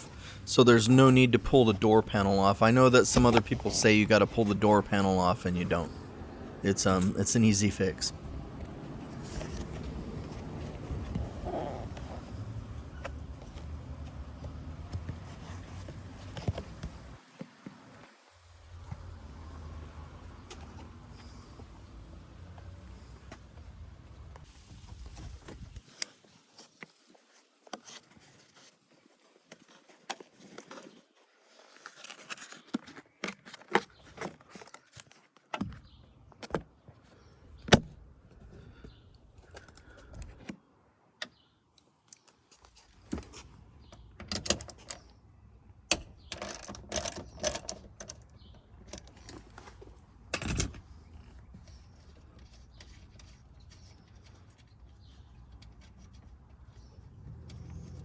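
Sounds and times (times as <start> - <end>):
hand tools clicking and clinking: 45.9 - 49.5.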